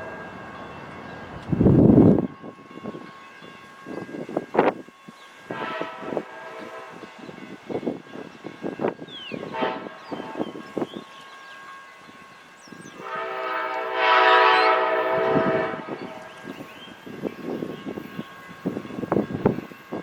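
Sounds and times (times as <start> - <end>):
train rolling by: 0.0 - 20.0
locomotive air horn blast: 5.5 - 7.0, 9.5 - 10.5, 13.0 - 16.2.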